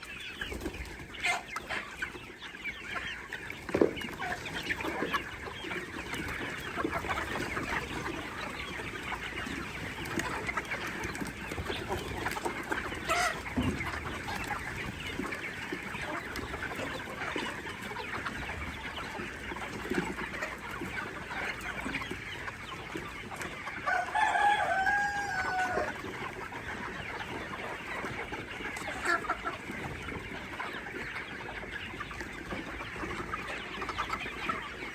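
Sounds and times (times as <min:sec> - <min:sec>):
baby chicks peeping: 0:00.0 - 0:34.9
adult chicken call: 0:23.3 - 0:28.1.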